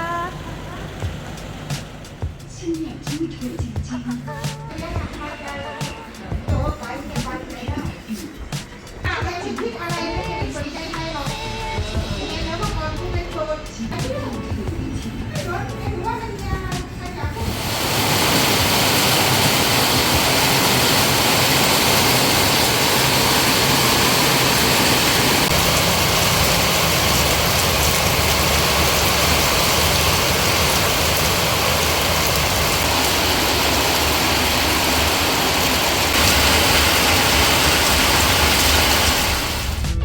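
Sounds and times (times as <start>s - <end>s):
heavy rain pouring: 17.2s - 40.0s.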